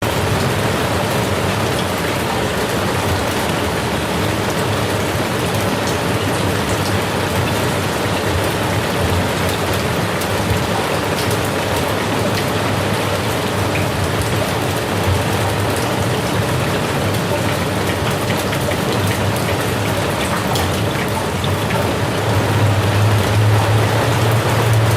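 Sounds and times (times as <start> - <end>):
rain falling on a surface: 0.0 - 24.9.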